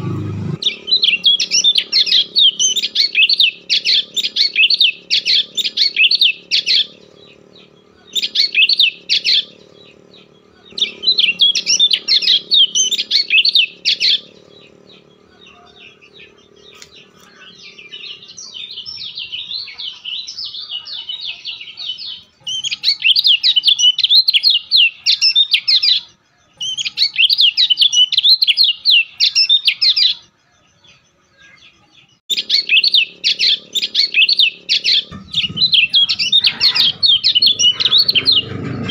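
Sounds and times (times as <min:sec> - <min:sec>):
low steady hum: 0:00.0 - 0:19.2, 0:32.3 - 0:38.9
bird chirping: 0:00.0 - 0:38.9.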